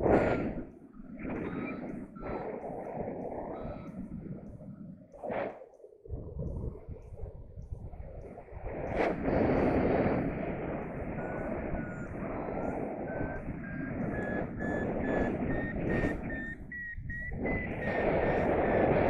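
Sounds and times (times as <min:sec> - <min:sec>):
variometer beeping: 0:00.0 - 0:04.8, 0:10.2 - 0:19.0
wind rush on microphone: 0:00.0 - 0:19.0.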